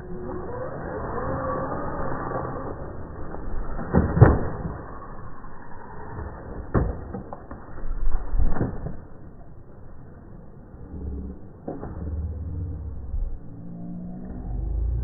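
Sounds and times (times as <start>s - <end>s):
low deep rumble of trucks: 10.7s - 15.0s.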